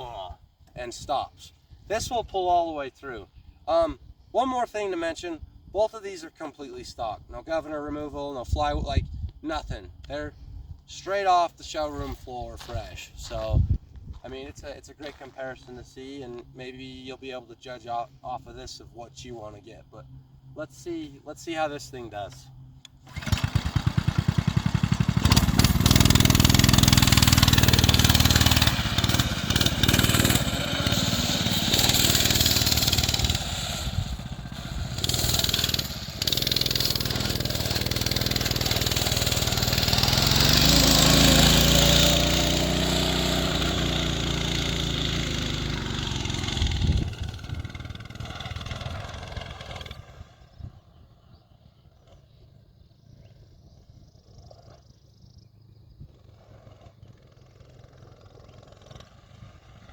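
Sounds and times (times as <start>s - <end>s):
small engine running hard: 22.5s - 52.5s, 55.6s - 59.9s.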